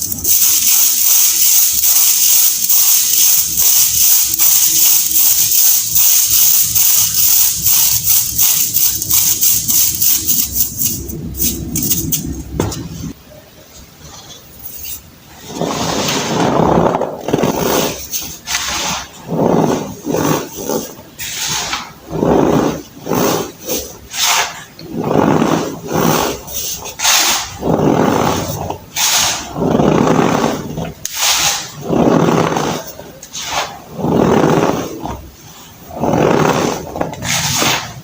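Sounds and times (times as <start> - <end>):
baking soda crunching by hand: 0.0 - 12.1, 17.2 - 35.3.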